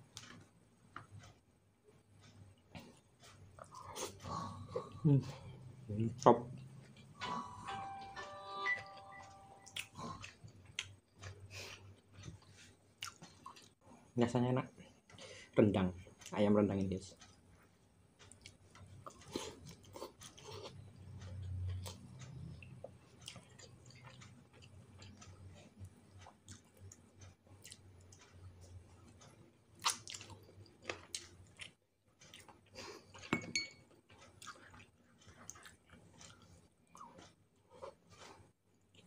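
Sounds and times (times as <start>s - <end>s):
wet chewing sounds: 9.6s - 13.8s, 17.2s - 39.0s.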